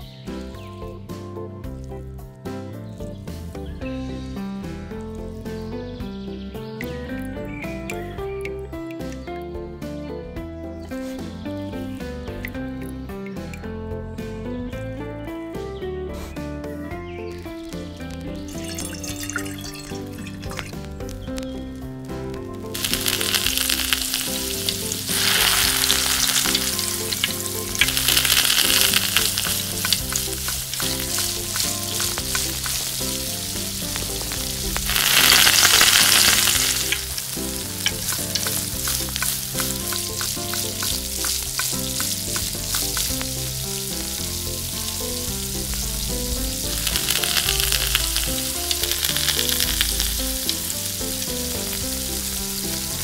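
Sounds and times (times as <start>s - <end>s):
food sizzling in hot oil: 17.3s - 53.0s.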